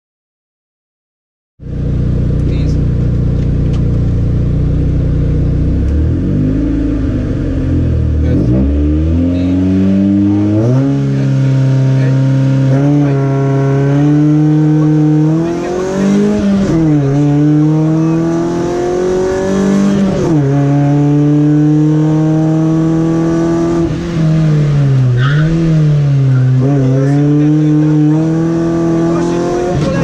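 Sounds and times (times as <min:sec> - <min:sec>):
rally car engine at high revs: 0:01.6 - 0:30.0.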